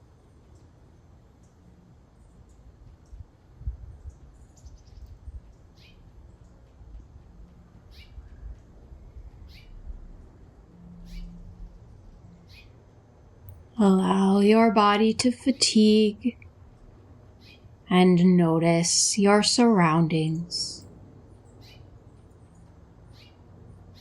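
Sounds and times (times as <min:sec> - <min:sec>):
birds chirping: 0:11.0 - 0:11.4.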